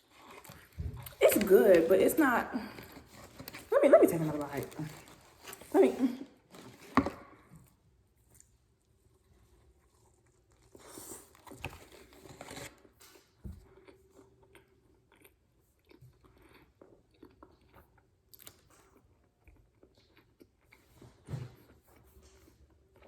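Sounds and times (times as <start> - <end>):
person chewing: 0.0 - 1.6, 2.6 - 3.7, 9.6 - 23.0.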